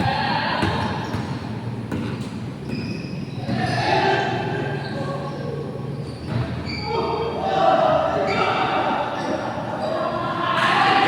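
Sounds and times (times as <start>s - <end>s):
basketball bouncing on court: 0.0s - 3.6s.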